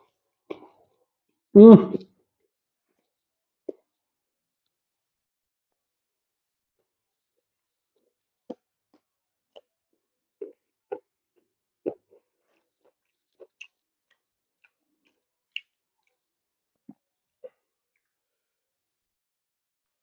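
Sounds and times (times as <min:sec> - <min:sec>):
person chewing with wet smacks: 0:08.5 - 0:09.7, 0:10.4 - 0:16.3.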